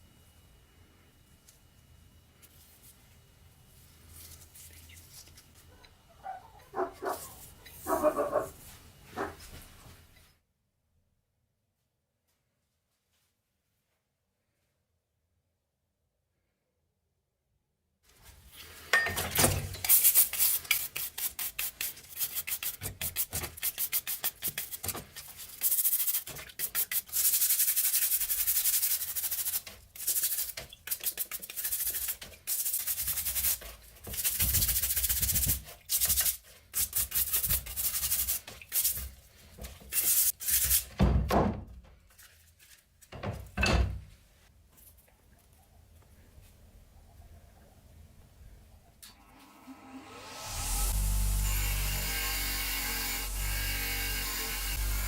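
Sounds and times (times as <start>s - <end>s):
hand scrubbing rusty metal: 19.7s - 40.9s.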